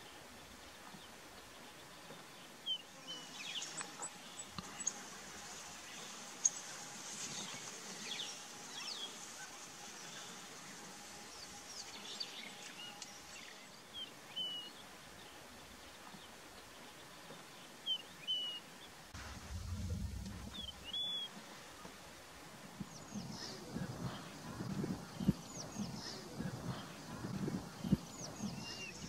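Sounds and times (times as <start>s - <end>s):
brief low rumble: 19.2s - 21.3s.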